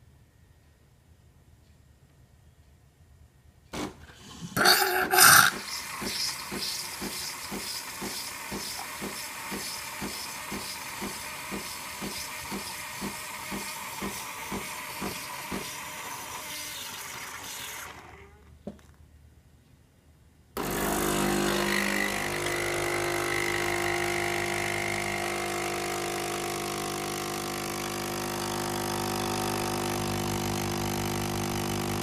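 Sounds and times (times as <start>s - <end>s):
pump pulsing: 5.2s - 18.3s, 20.6s - 32.0s.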